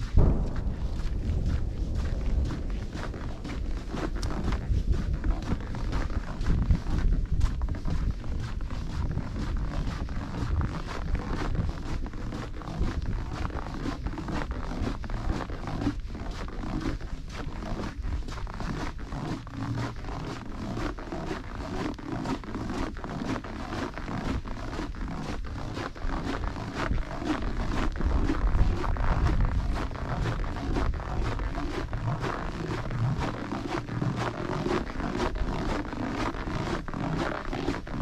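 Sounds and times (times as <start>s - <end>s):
crunching footsteps: 0.0s - 38.0s
steady low rumble: 0.0s - 38.0s.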